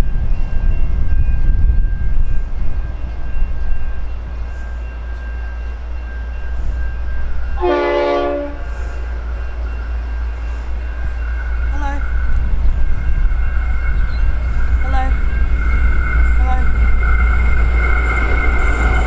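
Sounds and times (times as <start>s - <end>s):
diesel train rumbling: 0.0s - 19.0s
train horn blast: 7.6s - 8.8s.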